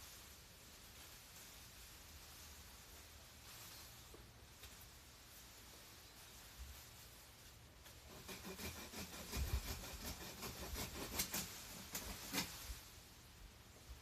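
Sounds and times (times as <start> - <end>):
plants rustling and snapping: 0.8 - 5.1.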